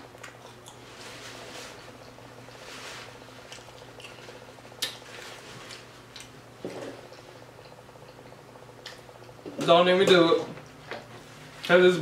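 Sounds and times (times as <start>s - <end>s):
chewing and wet mouth sounds: 3.4s - 5.0s, 7.1s - 9.4s.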